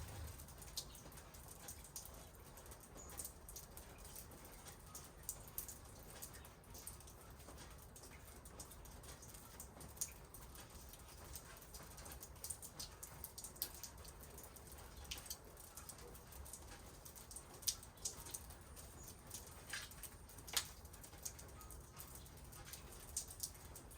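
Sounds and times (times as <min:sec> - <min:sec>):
faint low rumble: 0:00.0 - 0:00.5
rain drops tapping: 0:00.0 - 0:23.9.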